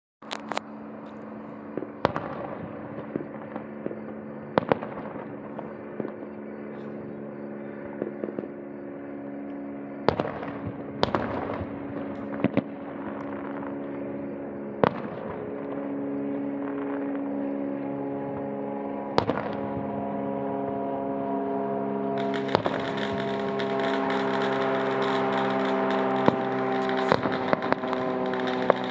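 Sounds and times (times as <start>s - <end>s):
fireworks booming: 1.7s - 6.3s, 10.0s - 13.8s, 14.8s - 15.8s, 19.2s - 20.1s, 21.6s - 28.9s
fireworks crackling: 21.7s - 28.9s.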